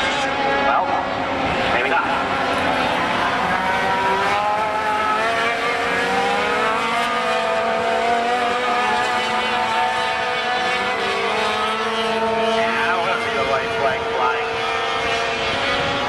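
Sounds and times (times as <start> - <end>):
racing truck engines: 0.0 - 16.0.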